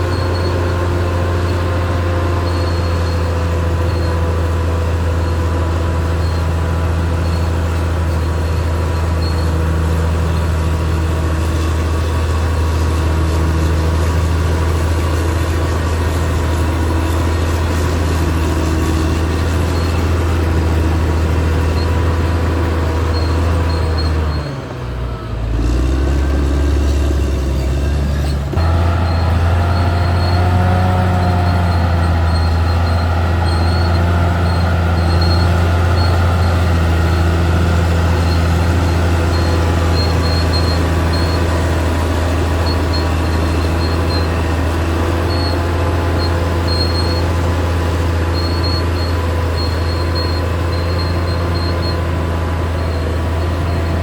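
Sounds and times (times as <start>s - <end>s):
faint high squeak: 0.0s - 14.2s, 14.8s - 54.0s
bulldozer diesel engine running: 0.0s - 54.0s.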